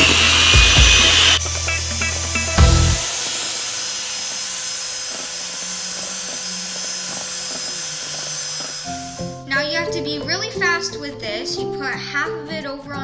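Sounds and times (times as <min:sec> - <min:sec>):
electric mixer whipping: 0:00.0 - 0:09.4.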